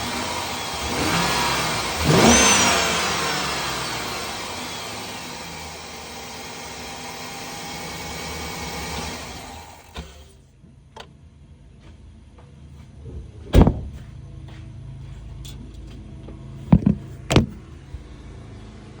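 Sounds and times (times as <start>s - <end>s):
engine idling: 0.0s - 10.4s
loud thumps: 13.5s - 14.0s.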